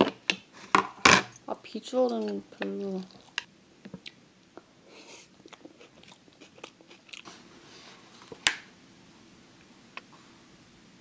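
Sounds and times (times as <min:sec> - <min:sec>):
person chewing food: 0:03.1 - 0:07.4.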